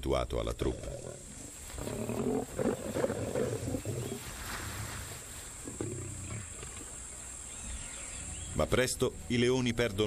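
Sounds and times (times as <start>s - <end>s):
lion growling: 0.6s - 5.0s, 5.6s - 7.0s.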